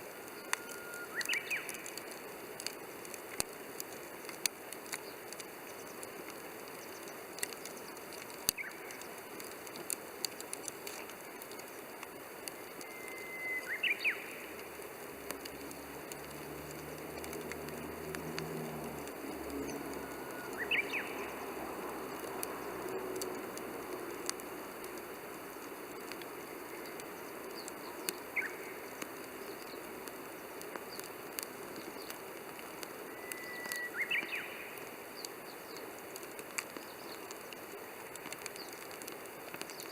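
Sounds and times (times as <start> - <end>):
wood fire crackling and popping: 0.0 - 39.9
bird chirping: 0.3 - 1.8, 12.6 - 14.5, 19.4 - 21.7, 33.1 - 34.7.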